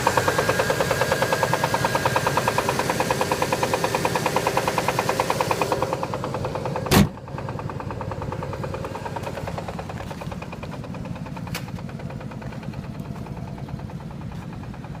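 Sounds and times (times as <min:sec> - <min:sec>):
car engine knocking: 0:00.0 - 0:15.0
loud thump: 0:06.9 - 0:07.2.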